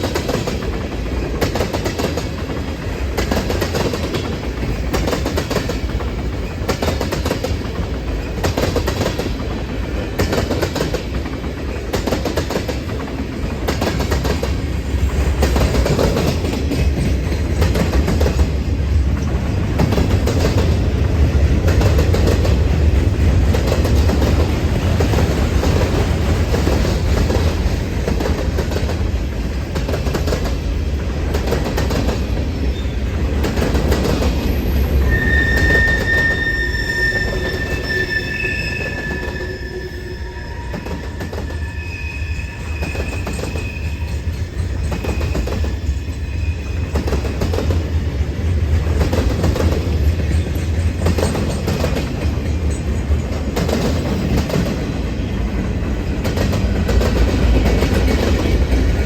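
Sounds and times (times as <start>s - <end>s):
train wheels rumbling on rails: 0.0s - 59.0s
high-pitched wheel squeal: 34.6s - 45.5s.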